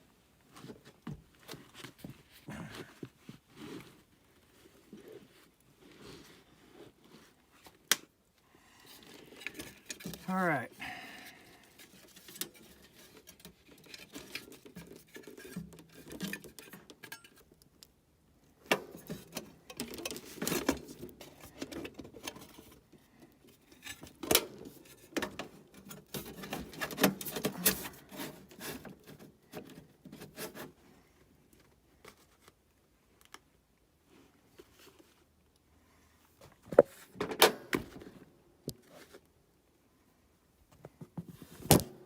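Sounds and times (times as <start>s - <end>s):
hand tools clicking and scraping: 9.0s - 17.5s, 23.6s - 30.7s.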